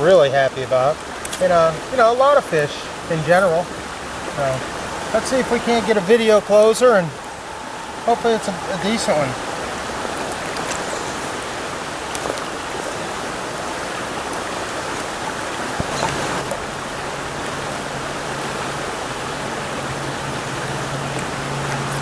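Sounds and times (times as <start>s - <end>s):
water rushing over rocks: 0.0s - 22.0s
low steady hum: 1.6s - 13.1s.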